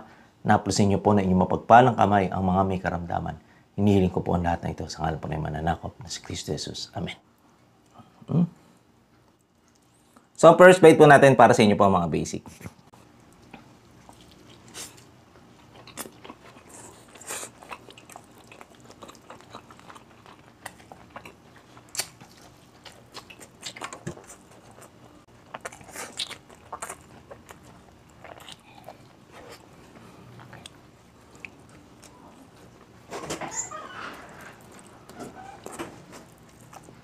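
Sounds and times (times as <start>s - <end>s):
man chewing food: 9.1s - 10.4s, 12.6s - 37.0s.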